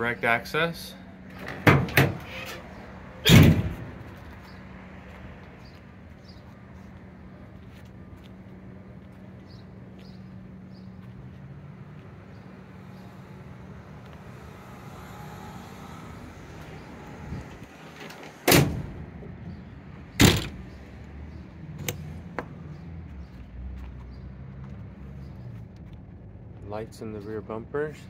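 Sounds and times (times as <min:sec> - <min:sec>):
truck doors slamming: 0:01.3 - 0:02.6, 0:03.2 - 0:04.0, 0:17.8 - 0:19.2, 0:20.1 - 0:20.7.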